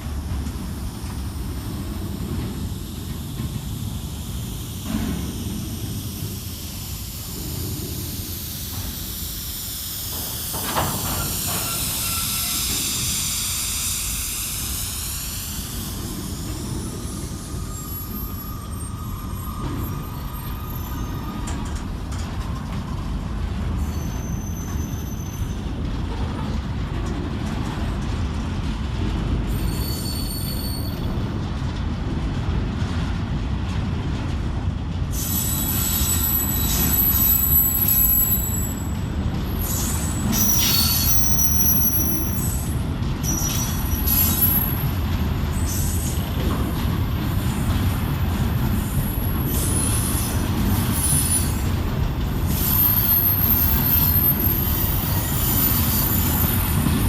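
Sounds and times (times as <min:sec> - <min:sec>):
freight train rumbling: 0:00.0 - 0:57.0
wheel squeals: 0:10.1 - 0:22.0, 0:23.8 - 0:25.7, 0:29.5 - 0:31.2, 0:35.2 - 0:57.0.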